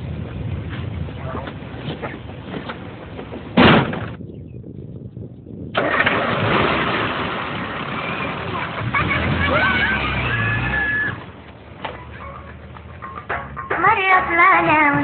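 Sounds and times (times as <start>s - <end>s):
car engine starting and running: 5.6s - 15.0s
loud engine burst: 5.8s - 11.3s.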